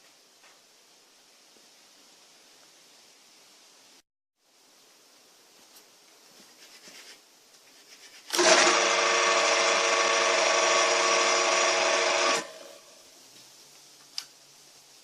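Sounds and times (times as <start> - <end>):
electric motor humming: 8.4 - 12.8.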